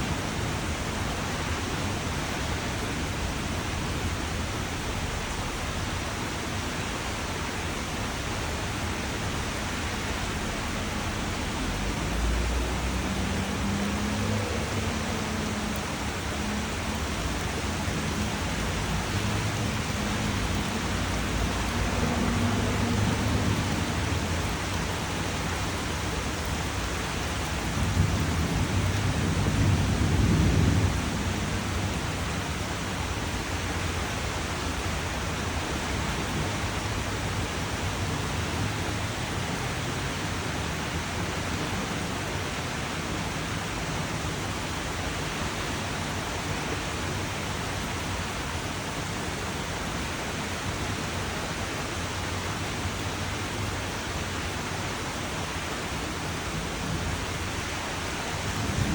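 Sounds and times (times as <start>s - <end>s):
steady rain hiss: 0.0s - 58.9s
low rumble of thunder: 26.0s - 33.5s, 56.3s - 58.9s.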